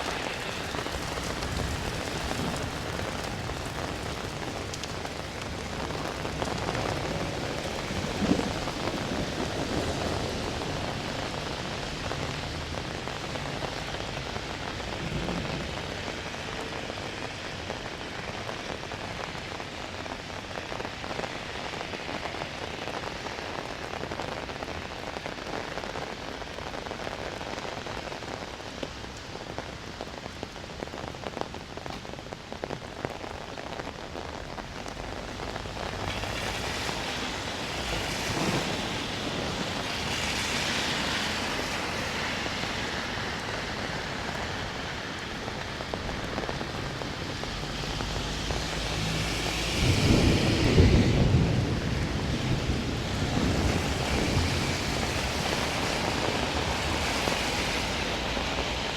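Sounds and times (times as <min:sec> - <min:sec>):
rain with dripping patter: 0:00.0 - 0:58.9
low roll of thunder: 0:05.4 - 0:17.1, 0:35.2 - 0:40.4, 0:46.2 - 0:56.9.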